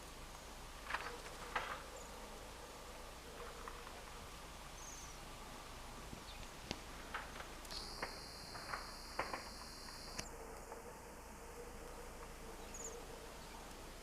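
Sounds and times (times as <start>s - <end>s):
steady low hiss: 0.0s - 14.0s
faint high bird twitter: 4.8s - 5.2s, 7.7s - 10.3s, 11.9s - 13.7s.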